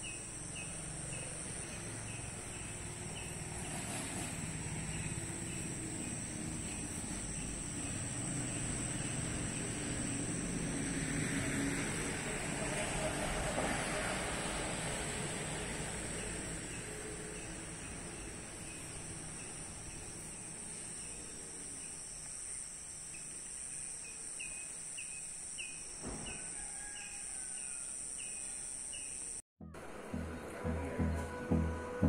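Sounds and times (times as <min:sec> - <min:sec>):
high-pitched hiss: 0:00.0 - 0:29.4.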